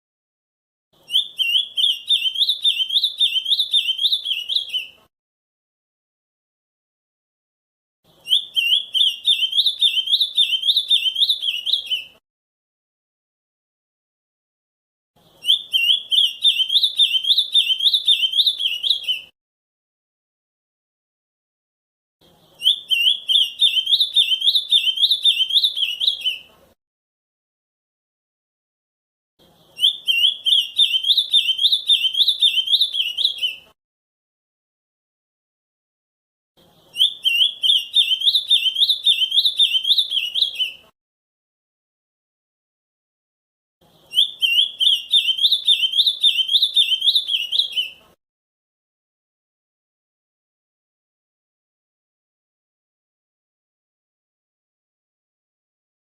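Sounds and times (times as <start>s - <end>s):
bird whistled song: 1.0s - 5.0s, 8.1s - 12.2s, 15.3s - 19.3s, 22.4s - 26.5s, 29.6s - 33.8s, 36.7s - 40.9s, 43.9s - 48.0s.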